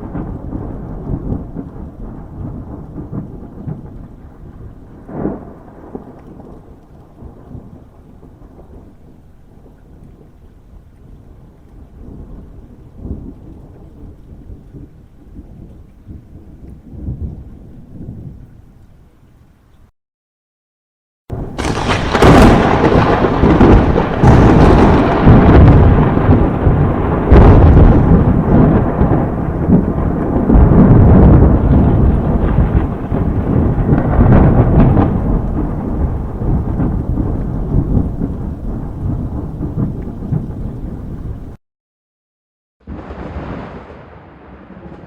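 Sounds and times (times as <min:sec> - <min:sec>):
thunder cracks: 0:00.0 - 0:08.8, 0:21.3 - 0:41.6, 0:42.9 - 0:45.0
thunder rolling rumble: 0:00.0 - 0:10.3, 0:21.3 - 0:41.6, 0:42.9 - 0:45.0.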